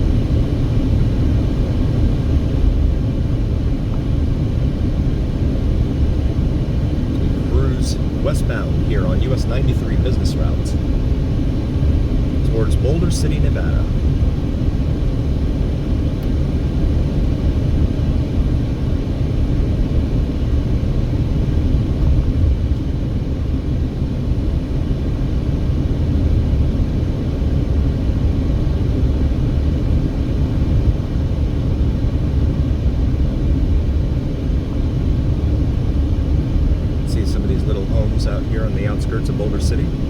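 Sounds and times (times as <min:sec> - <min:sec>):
car road rumble from inside: 0:06.9 - 0:11.2.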